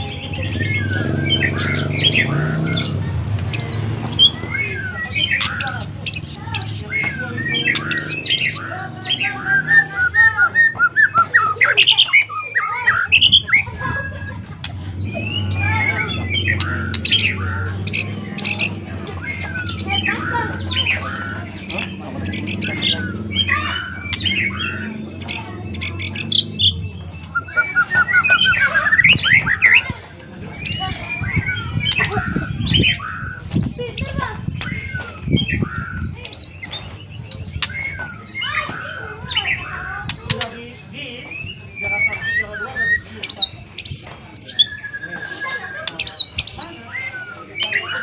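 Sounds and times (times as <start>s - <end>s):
bird singing whistles and chatter: 0.0s - 48.0s.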